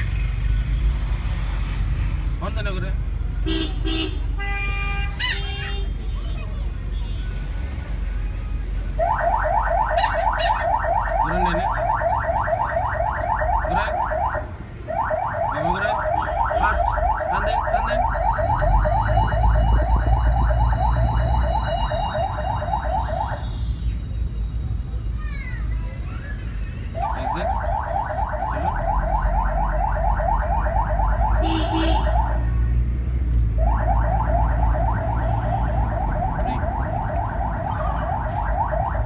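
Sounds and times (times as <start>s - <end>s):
car engine rumble: 0.0s - 39.0s
electronic alarm warbling chirps: 9.1s - 14.4s, 15.0s - 23.6s, 33.7s - 39.0s.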